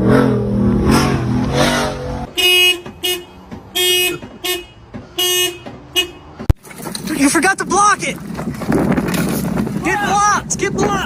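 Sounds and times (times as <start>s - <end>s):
vehicle engine revving: 0.0s - 6.5s
vehicle horn honking: 2.3s - 6.4s.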